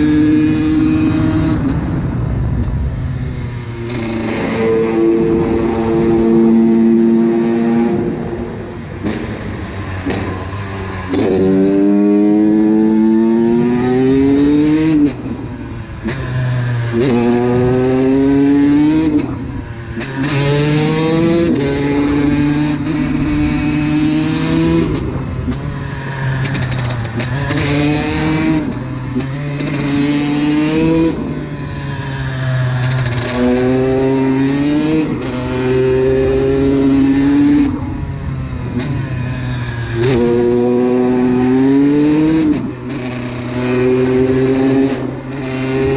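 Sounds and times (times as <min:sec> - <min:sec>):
two-stroke motorcycle engine revving: 0:03.9 - 0:25.7, 0:32.1 - 0:45.9.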